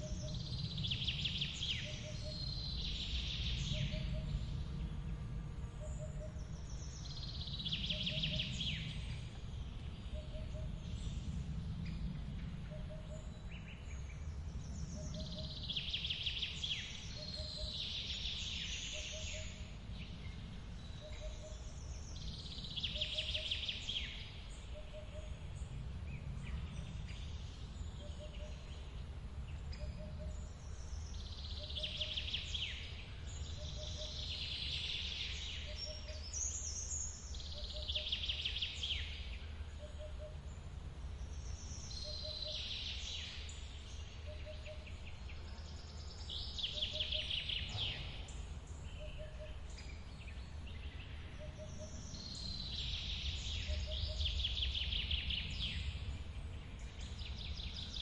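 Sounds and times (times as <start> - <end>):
bird trilled song: 12.6 - 25.6, 29.6 - 40.6, 41.2 - 58.0.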